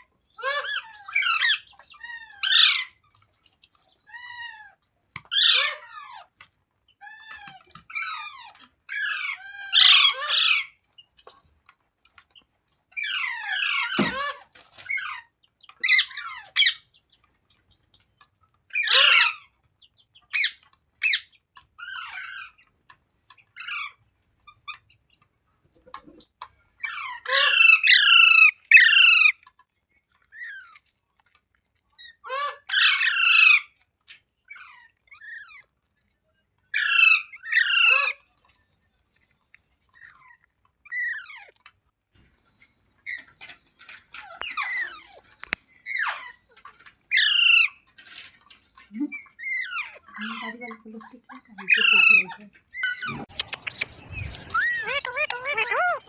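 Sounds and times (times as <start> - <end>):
parakeet squawking: 51.6 - 56.0
faint chirps: 53.0 - 56.0.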